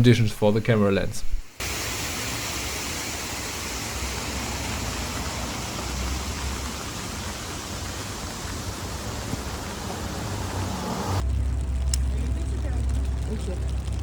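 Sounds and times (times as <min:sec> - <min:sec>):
rain falling on street: 0:01.6 - 0:14.0
low rumble: 0:04.0 - 0:14.0.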